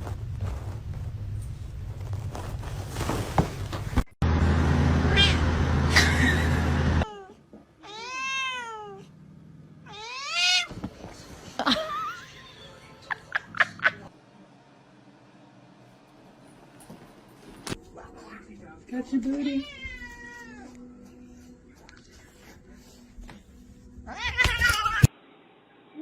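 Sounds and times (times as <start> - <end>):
loud steady noise with hum: 4.2 - 7.0
cat meowing: 5.1 - 5.5, 7.0 - 9.1, 9.8 - 10.7, 19.5 - 20.7.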